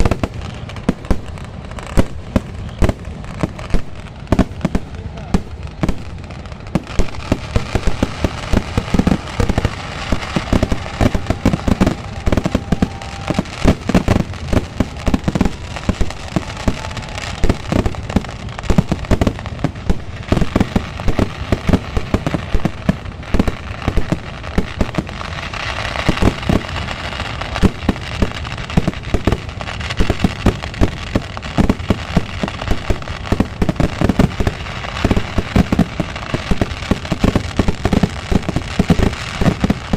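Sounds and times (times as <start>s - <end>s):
firework bangs: 0.0s - 39.9s
firecracker reports: 4.4s - 13.9s.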